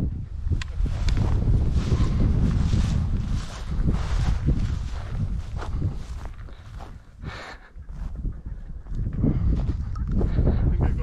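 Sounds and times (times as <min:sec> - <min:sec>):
wind buffeting microphone: 0:00.0 - 0:11.0
rustling through vegetation: 0:00.6 - 0:07.1
footsteps: 0:00.6 - 0:10.6.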